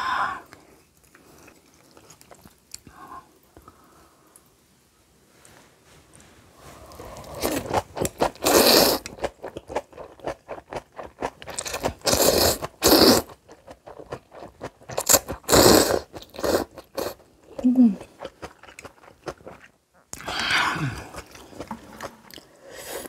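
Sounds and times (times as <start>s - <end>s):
crisp chewing crunches: 0.5s - 3.0s, 6.9s - 20.3s.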